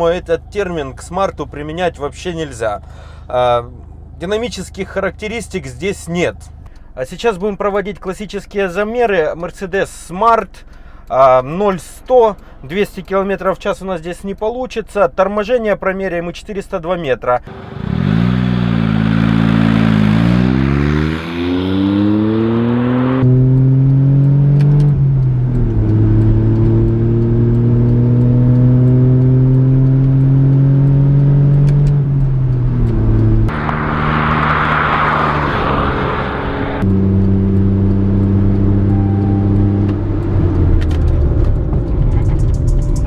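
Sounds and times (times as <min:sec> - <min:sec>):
small car engine accelerating: 0:17.5 - 0:43.0.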